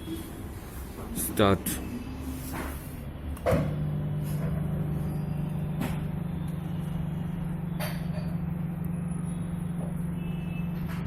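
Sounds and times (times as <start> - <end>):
microwave oven humming: 2.9 - 11.0.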